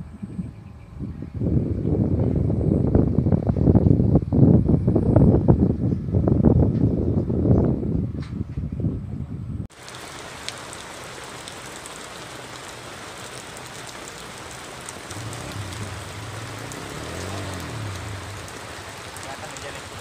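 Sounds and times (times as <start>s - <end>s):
rain falling on water: 9.7s - 20.0s.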